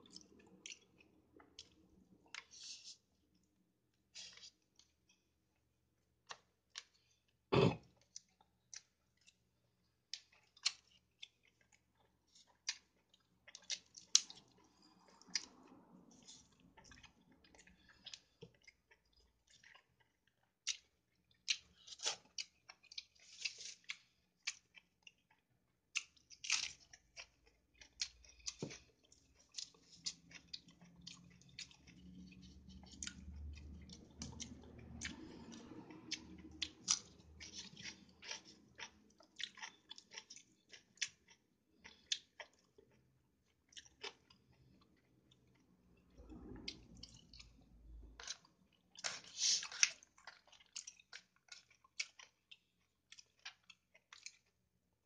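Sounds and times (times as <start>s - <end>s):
close-up chewing and mouth clicks: 0.0s - 54.7s.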